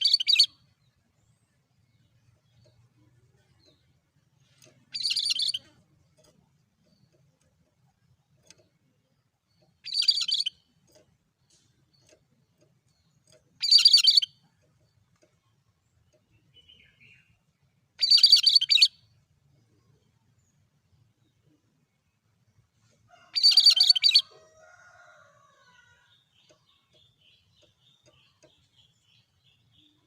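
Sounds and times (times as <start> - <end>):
bird song bursts: 18.0 - 19.1.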